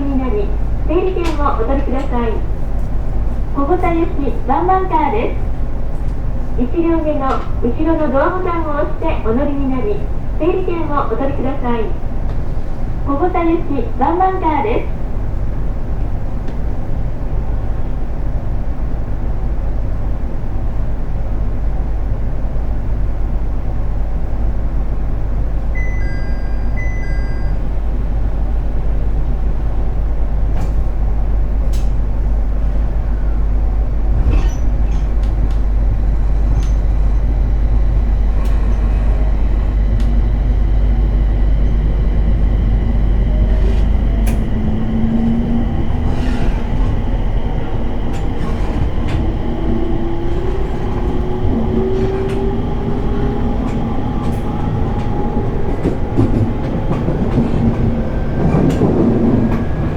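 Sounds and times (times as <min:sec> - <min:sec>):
train rumble: 0:00.0 - 0:59.9
short beeps: 0:25.8 - 0:27.6.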